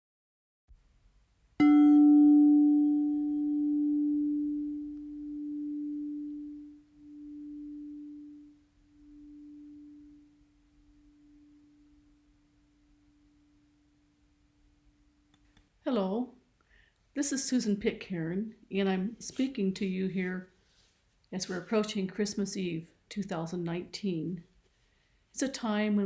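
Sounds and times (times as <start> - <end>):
singing bowl ringing: 1.6 - 14.3.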